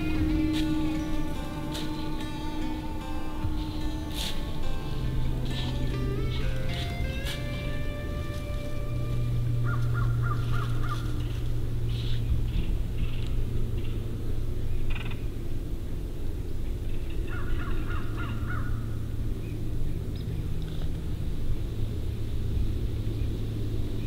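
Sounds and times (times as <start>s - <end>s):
steady low rumble: 0.0s - 24.0s
harsh bird calls: 9.6s - 11.3s.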